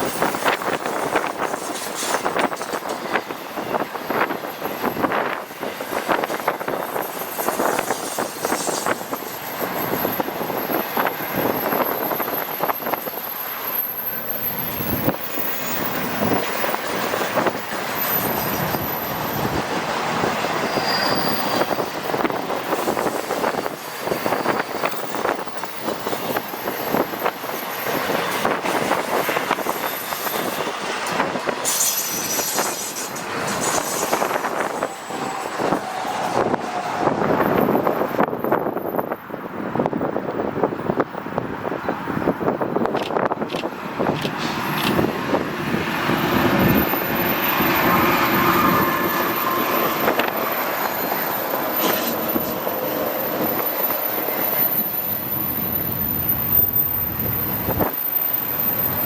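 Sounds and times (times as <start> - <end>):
freight train wheels clattering: 0.0 - 13.1, 14.5 - 38.2, 42.8 - 55.7
high-pitched wheel squeal: 6.6 - 39.1, 46.6 - 59.0.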